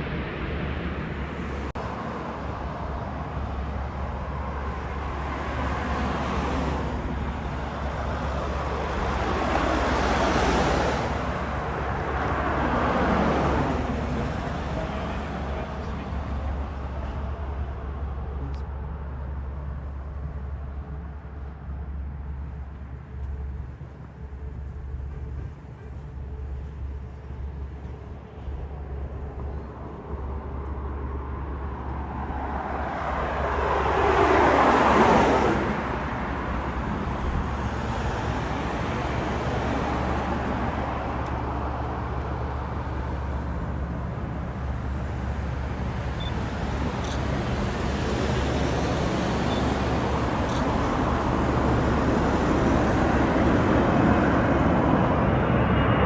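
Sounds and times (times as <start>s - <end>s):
jet airliner passing: 0.0s - 18.7s, 23.3s - 56.0s.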